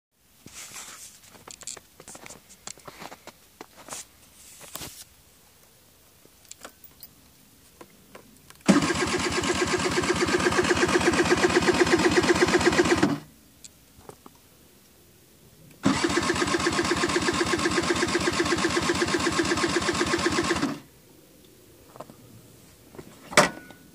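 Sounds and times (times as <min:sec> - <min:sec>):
scooter electric starter cranking: 0:08.6 - 0:13.2, 0:15.8 - 0:20.8.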